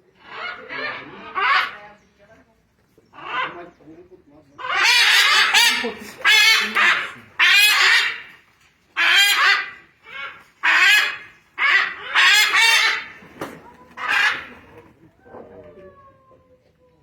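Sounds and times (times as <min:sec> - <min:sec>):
macaws squawking: 0:00.2 - 0:01.8, 0:04.6 - 0:08.4, 0:09.0 - 0:13.2, 0:13.9 - 0:14.8.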